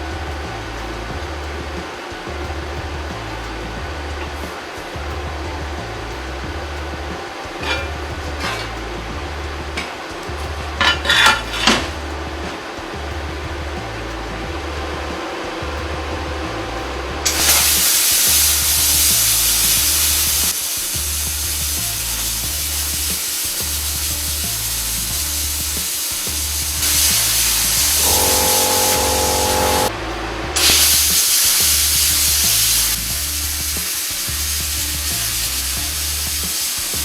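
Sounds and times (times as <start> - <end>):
background music with bass: 0.0 - 37.0
welding arc sizzling: 17.2 - 29.9, 30.6 - 37.0.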